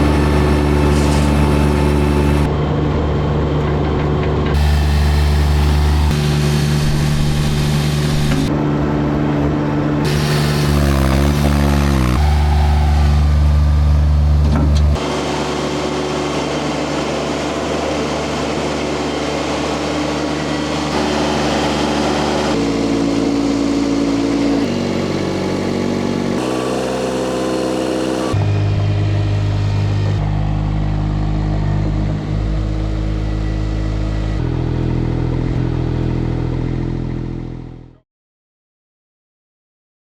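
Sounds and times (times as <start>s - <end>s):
skid steer engine under load: 0.0s - 37.9s.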